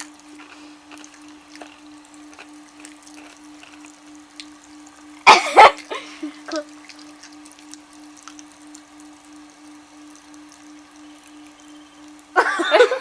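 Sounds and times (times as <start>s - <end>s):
candy crackling: 0.0s - 4.6s
low hum: 0.0s - 13.0s.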